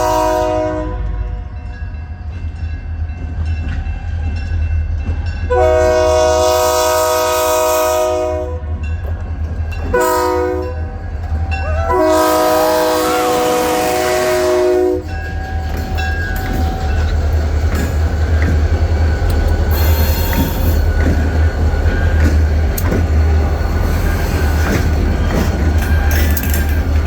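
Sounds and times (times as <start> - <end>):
train air horn: 0.0 - 1.3, 5.5 - 8.7, 9.9 - 10.8, 11.7 - 15.1
rail clicks: 0.0 - 8.0, 8.6 - 27.0
diesel locomotive rumble: 0.0 - 27.0.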